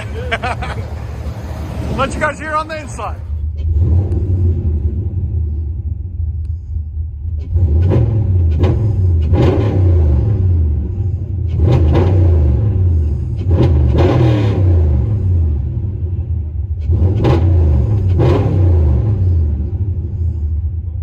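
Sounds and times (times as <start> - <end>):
engine idling and revving: 0.0 - 21.0.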